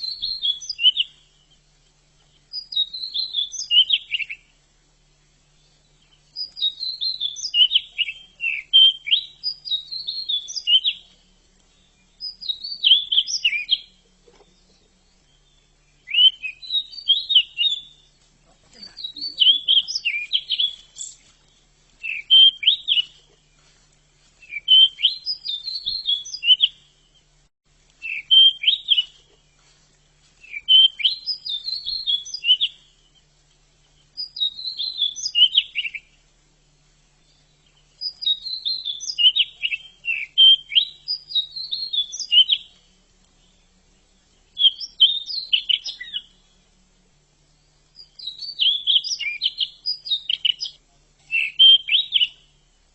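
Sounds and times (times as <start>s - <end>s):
bird twittering song: 0.0s - 52.9s.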